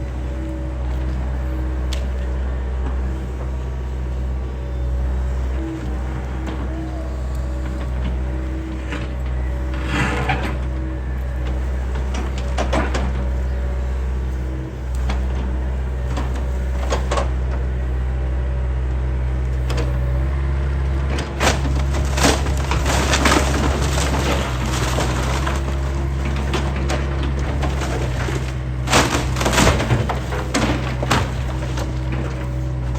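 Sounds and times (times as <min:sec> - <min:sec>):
excavator engine running: 0:00.0 - 0:32.9
wood cracking and splintering: 0:21.0 - 0:32.9.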